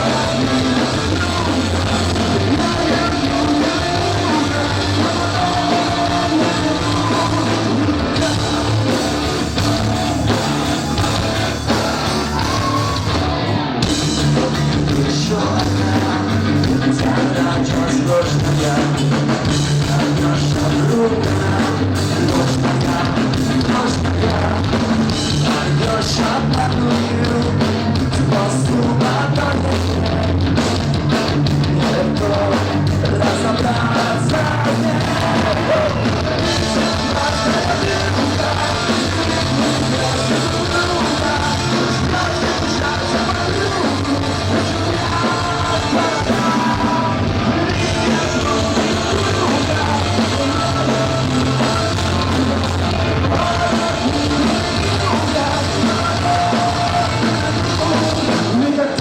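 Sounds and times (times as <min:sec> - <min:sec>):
drum beat: 0:00.0 - 0:13.2, 0:30.8 - 0:58.6
lead voice singing: 0:00.0 - 0:59.0
punk rock band playing: 0:00.0 - 0:59.0.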